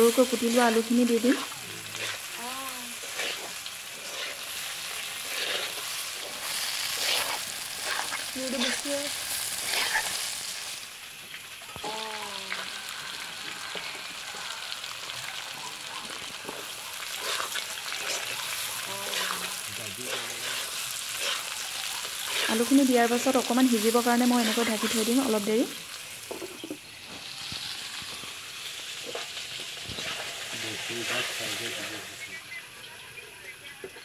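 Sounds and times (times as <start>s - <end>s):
chicken sizzling in oil: 0.0s - 34.0s
metal spatula scraping pan: 3.0s - 8.8s, 22.2s - 22.7s.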